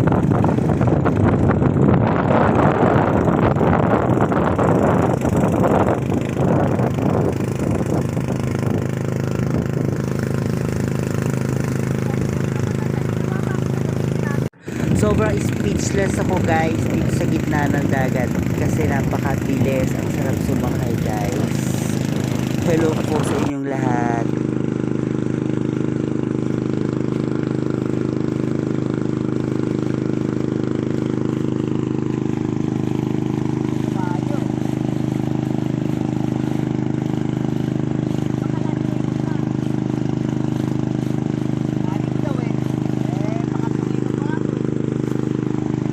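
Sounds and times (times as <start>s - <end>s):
wind noise on microphone: 0.0s - 27.2s
boat engine idling: 0.0s - 45.9s
water noise: 0.0s - 45.9s.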